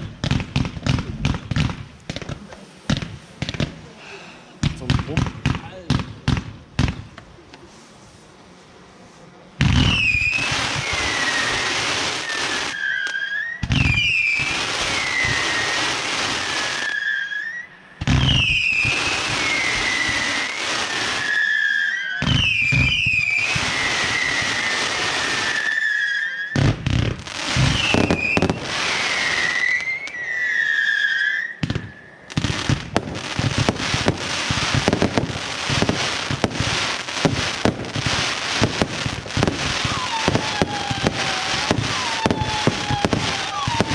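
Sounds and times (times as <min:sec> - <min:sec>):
firework bursts with whistles: 0:00.0 - 0:03.8, 0:09.6 - 0:43.9
firework launch thumps: 0:00.0 - 0:03.9
firework crackling: 0:00.0 - 0:43.9.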